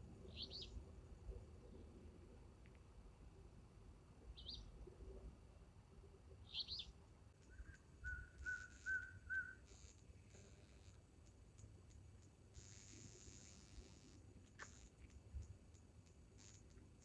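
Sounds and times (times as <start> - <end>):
short whistled bird notes: 7.5 - 9.6.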